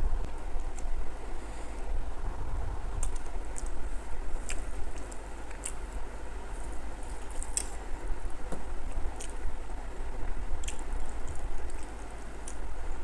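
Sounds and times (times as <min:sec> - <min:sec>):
wet mouth clicks and chewing: 0:04.4 - 0:05.8, 0:10.6 - 0:12.6.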